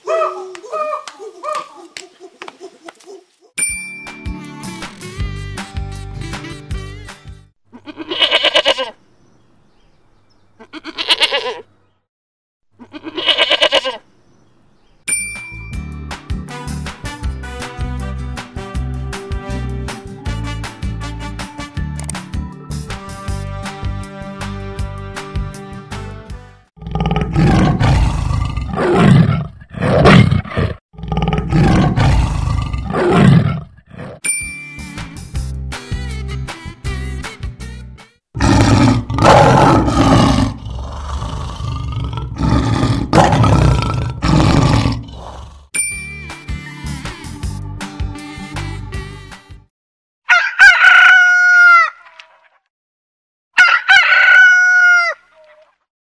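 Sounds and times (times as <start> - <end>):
chime: 3.6 - 4.5, 15.1 - 16.0, 34.2 - 35.1, 45.8 - 46.8
upbeat music: 3.9 - 7.5, 15.3 - 26.5, 34.4 - 38.2, 45.8 - 49.7
goat bleating: 7.7 - 9.0, 10.6 - 11.7, 12.8 - 14.0
tiger roaring: 26.8 - 34.2, 38.4 - 45.7.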